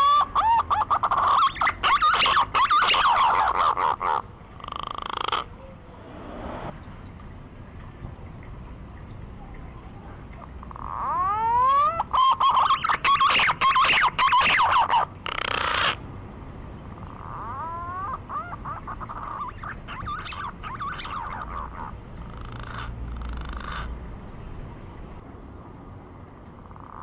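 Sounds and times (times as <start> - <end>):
rapid bird chattering: 0.0 - 5.5, 10.5 - 16.0, 16.9 - 23.9.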